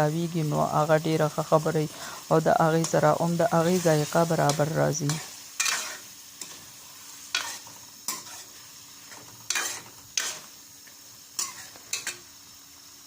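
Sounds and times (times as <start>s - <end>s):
food sizzling in a pan: 0.0s - 13.0s
spoon scraping and knocking pan: 3.7s - 12.3s.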